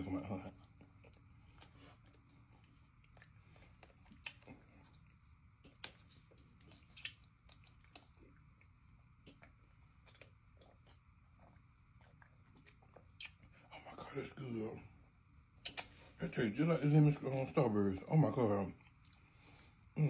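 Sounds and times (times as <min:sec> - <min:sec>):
person chewing: 0:00.4 - 0:14.0, 0:15.6 - 0:16.2, 0:18.8 - 0:20.0
mouth clicks and smacks: 0:00.7 - 0:13.7, 0:15.6 - 0:16.2.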